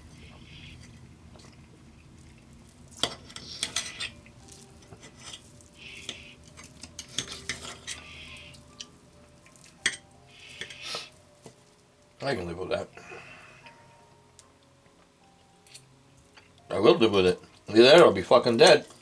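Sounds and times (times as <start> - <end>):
cutlery clinking on a plate: 9.8 - 10.8.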